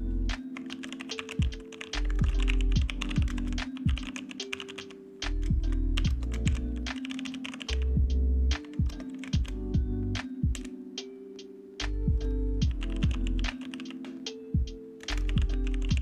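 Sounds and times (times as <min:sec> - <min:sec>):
electronic music with bass: 0:00.0 - 0:00.4, 0:01.4 - 0:03.7, 0:05.2 - 0:06.9, 0:07.8 - 0:10.6, 0:11.9 - 0:13.5, 0:14.6 - 0:16.0
keyboard typing: 0:00.4 - 0:09.6, 0:10.2 - 0:10.8, 0:11.8 - 0:16.0.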